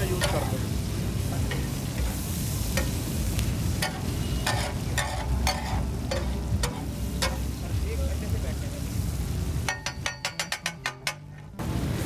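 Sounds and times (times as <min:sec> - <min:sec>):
chicken sizzling on griddle: 0:00.0 - 0:12.0
metal spatula scraping griddle: 0:03.8 - 0:07.5, 0:09.7 - 0:11.6.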